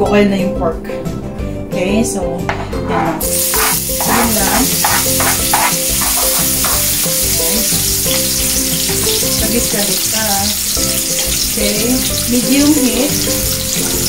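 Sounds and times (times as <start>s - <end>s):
spatula scraping a pan: 2.9s - 8.6s
onions sizzling in a frying pan: 3.2s - 14.0s.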